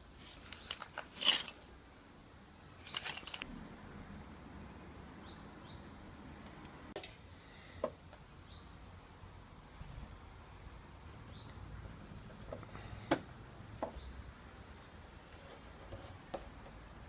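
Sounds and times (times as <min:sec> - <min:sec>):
metal parts clicking and clattering: 0:00.4 - 0:01.7, 0:02.8 - 0:03.5.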